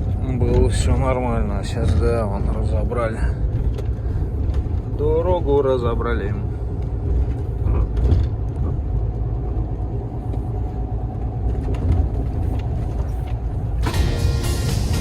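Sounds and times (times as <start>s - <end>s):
road noise: 0.0s - 15.0s
truck engine rumble: 0.0s - 15.0s.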